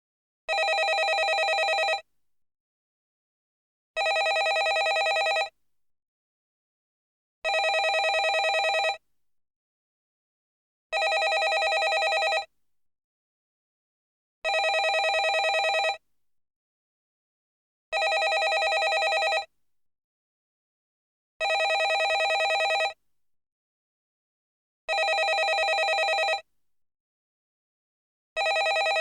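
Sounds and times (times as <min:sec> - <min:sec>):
landline telephone bell ringing: 0:00.5 - 0:02.0, 0:04.0 - 0:05.5, 0:07.5 - 0:09.0, 0:11.0 - 0:12.5, 0:14.5 - 0:16.0, 0:18.0 - 0:19.5, 0:21.4 - 0:23.0, 0:24.9 - 0:26.4, 0:28.4 - 0:29.0.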